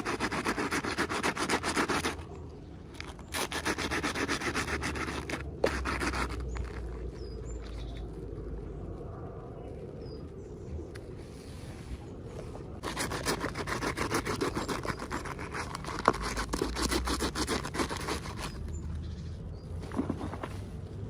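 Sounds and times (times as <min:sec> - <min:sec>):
low hum: 0:04.4 - 0:13.6.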